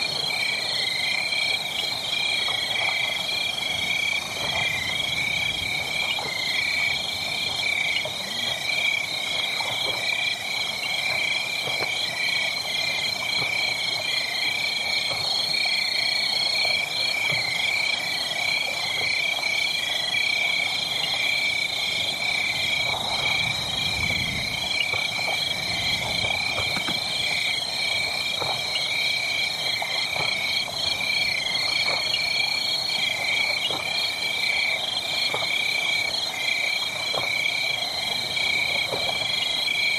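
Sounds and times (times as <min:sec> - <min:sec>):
wood fire crackling: 0:22.0 - 0:34.6.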